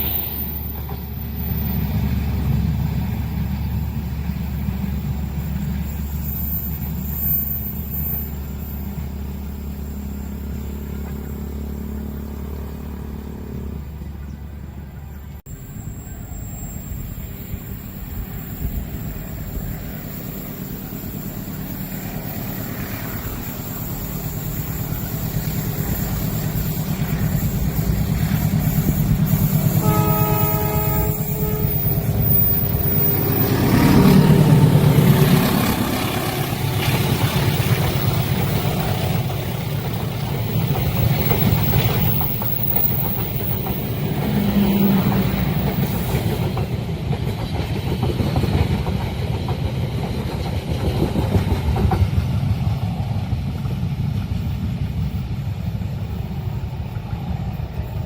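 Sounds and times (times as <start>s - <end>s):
train cars rumbling past: 0.0s - 58.0s
train engine drone: 0.0s - 58.0s
train horn: 28.8s - 38.2s.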